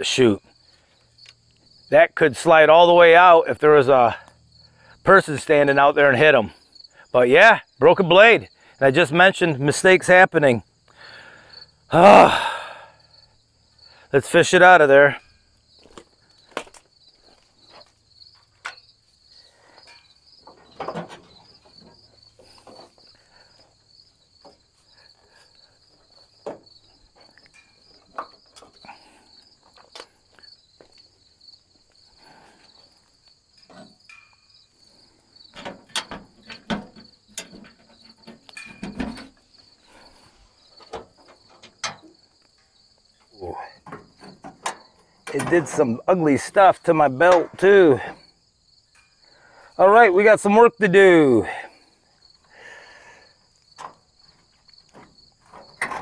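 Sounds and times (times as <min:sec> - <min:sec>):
crickets chirping: 0:00.0 - 0:56.0
metal knocks and clanks: 0:19.8 - 0:23.0, 0:35.5 - 0:39.5, 0:40.8 - 0:42.2, 0:43.8 - 0:45.8, 0:54.9 - 0:56.0.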